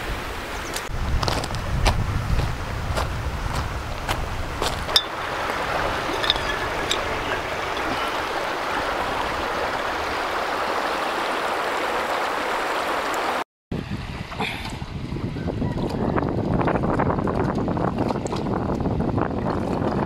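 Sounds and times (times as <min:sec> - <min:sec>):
river water running over stones: 0:00.0 - 0:13.4.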